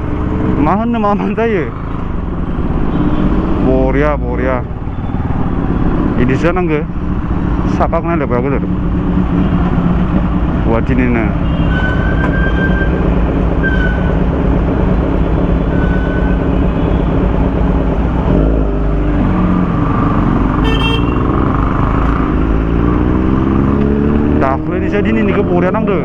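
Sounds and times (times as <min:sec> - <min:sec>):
motorcycle engine accelerating: 0:00.0 - 0:26.0
horn toots: 0:11.1 - 0:14.2, 0:19.7 - 0:22.4.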